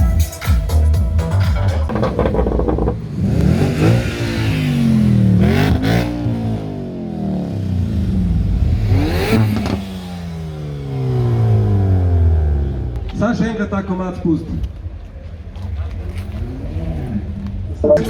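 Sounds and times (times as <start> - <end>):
car engine revving in blips: 1.6 - 13.2.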